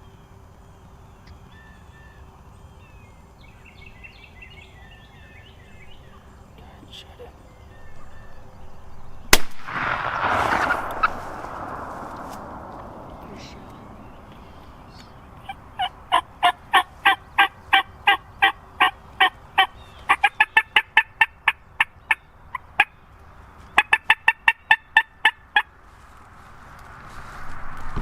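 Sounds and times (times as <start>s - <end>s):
turkey hen yelping: 15.4s - 22.9s.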